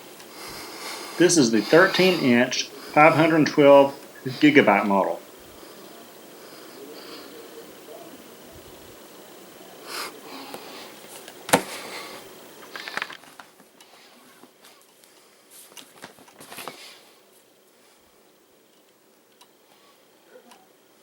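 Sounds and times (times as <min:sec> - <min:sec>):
cellophane rustling: 0:12.6 - 0:13.6.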